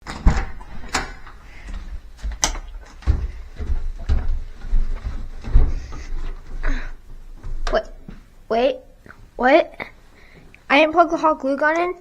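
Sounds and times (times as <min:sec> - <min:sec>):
objects knocking and thumping: 0:00.0 - 0:08.3.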